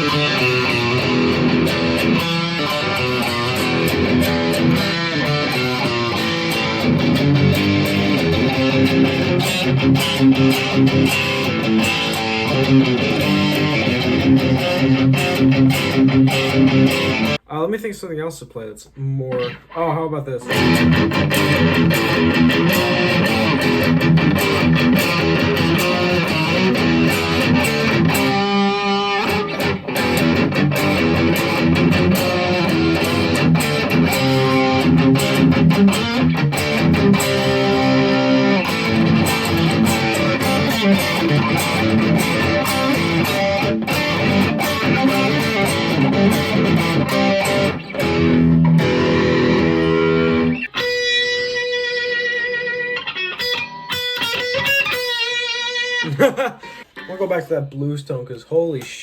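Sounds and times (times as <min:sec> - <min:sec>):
distorted electric guitar riffs: 0:00.0 - 0:17.5, 0:19.3 - 0:19.8, 0:20.4 - 0:57.3.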